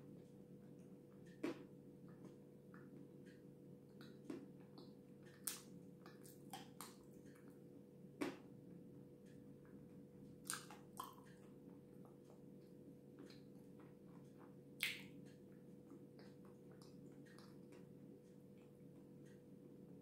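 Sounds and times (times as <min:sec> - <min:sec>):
faint steady hum: 0:00.0 - 0:20.0
chewing with wet mouth smacks: 0:03.9 - 0:07.5, 0:10.4 - 0:11.5, 0:15.9 - 0:17.8.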